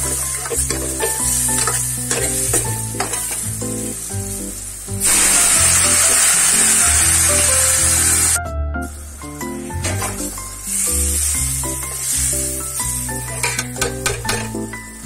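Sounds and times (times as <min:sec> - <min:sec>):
steel ladle stirring: 0:00.0 - 0:03.4, 0:13.3 - 0:14.5
masala frying and sizzling: 0:00.0 - 0:15.0
loud steam hiss: 0:01.2 - 0:08.4, 0:10.6 - 0:13.2.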